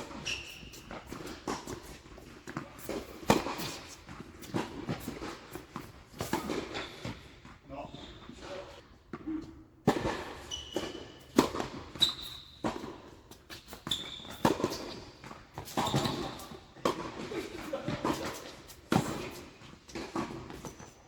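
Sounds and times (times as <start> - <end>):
racket hitting ball: 0.0 - 6.8, 9.9 - 11.9, 13.5 - 20.8
shoe squeaks: 0.1 - 1.5, 10.4 - 12.7, 13.5 - 16.6.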